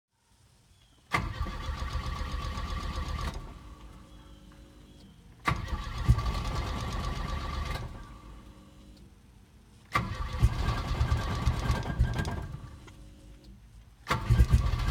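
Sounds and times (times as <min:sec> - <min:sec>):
engine cranking: 0:01.1 - 0:04.0, 0:05.4 - 0:08.2, 0:09.9 - 0:13.0, 0:14.0 - 0:14.9
sharp starter click: 0:05.4 - 0:08.1.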